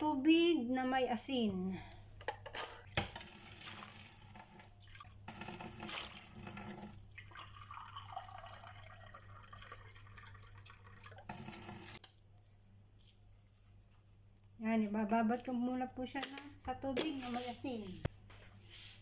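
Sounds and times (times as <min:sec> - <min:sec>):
water pouring into metal bowl: 0:03.2 - 0:12.0.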